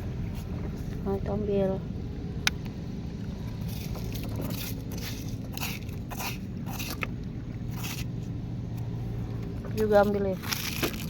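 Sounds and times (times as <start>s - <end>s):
low rumble: 0.0s - 11.0s
crunching scraping noises: 3.2s - 11.0s.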